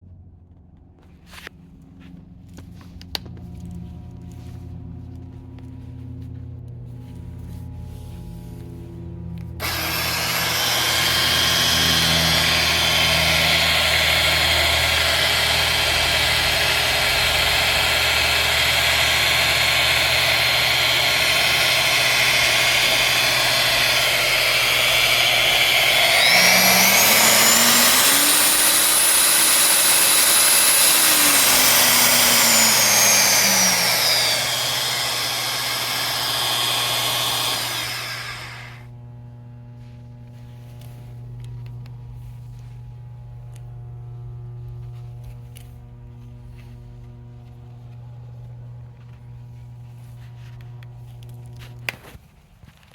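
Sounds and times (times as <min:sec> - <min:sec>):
core drill motor running: 0:09.6 - 0:39.0.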